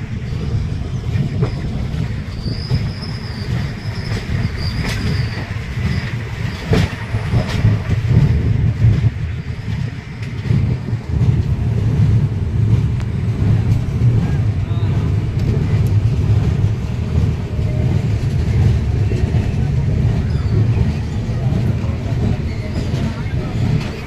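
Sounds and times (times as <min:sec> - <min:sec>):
train rumbling on rails: 0:00.0 - 0:24.0
high wheel squeal: 0:00.2 - 0:07.6, 0:20.2 - 0:24.0.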